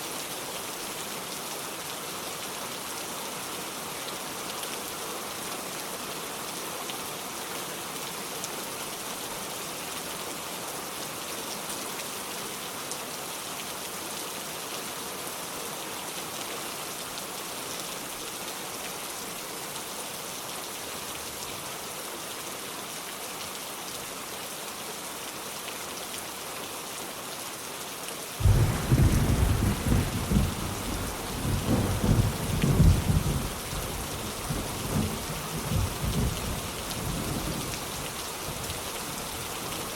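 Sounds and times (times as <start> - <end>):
heavy rain on a metal roof: 0.0 - 39.9
thunder rumbling: 28.4 - 37.5.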